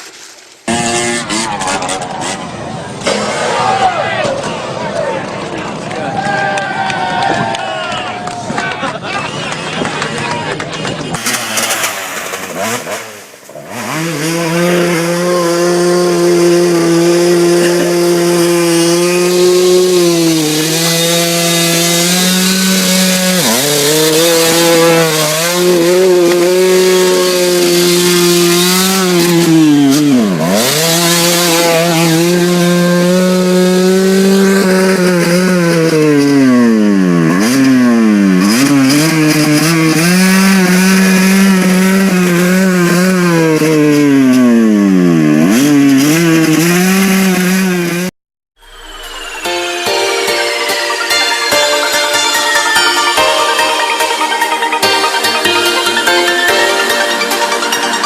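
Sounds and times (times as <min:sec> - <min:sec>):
small motorbike engine revving: 0:00.7 - 0:02.5, 0:12.5 - 0:50.4.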